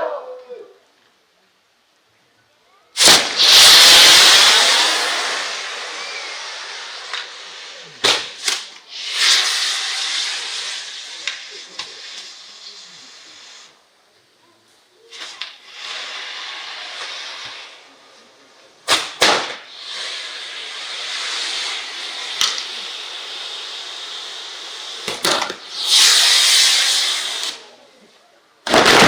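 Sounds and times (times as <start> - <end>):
sharp cracks: 3.0 - 12.8, 18.9 - 27.7, 28.6 - 29.0
fireworks hissing sparks: 3.0 - 29.0.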